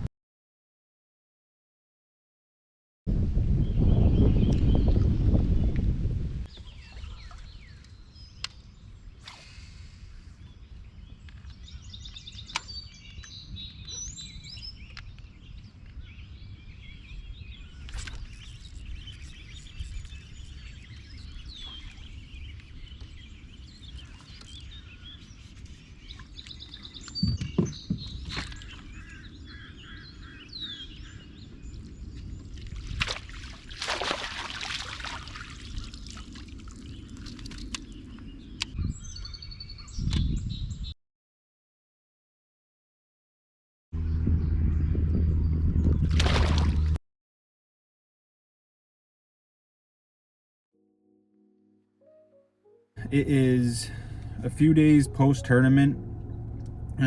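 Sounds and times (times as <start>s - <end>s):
birds chirping and calling: 10.2s - 32.7s
steady low rumble: 53.0s - 57.0s.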